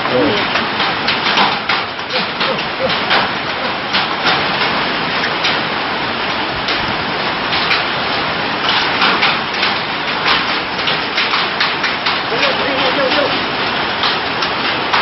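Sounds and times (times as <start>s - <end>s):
heavy rain: 0.0s - 15.0s
sharp knocks: 0.4s - 5.6s.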